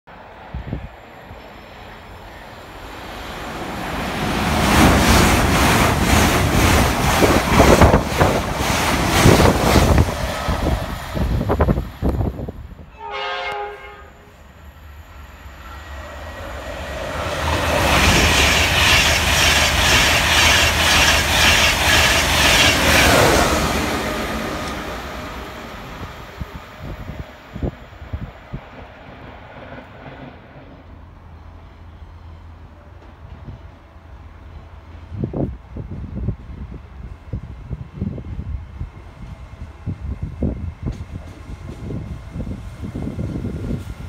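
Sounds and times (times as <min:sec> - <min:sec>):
train horn: 0:12.9 - 0:14.5.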